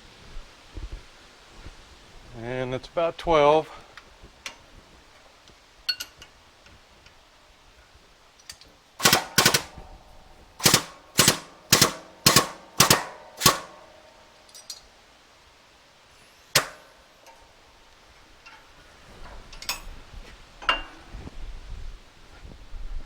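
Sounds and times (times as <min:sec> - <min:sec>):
sharp metallic knocks: 0:08.5 - 0:14.8, 0:16.5 - 0:17.4.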